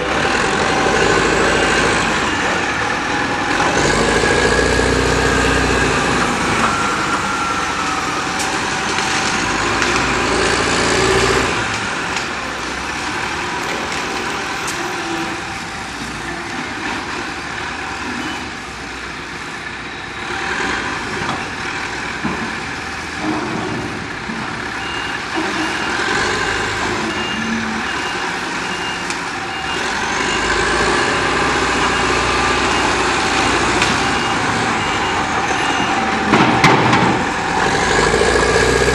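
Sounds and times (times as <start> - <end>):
diesel engines working: 0.0 - 38.9
backup alarm beeping: 5.8 - 10.8.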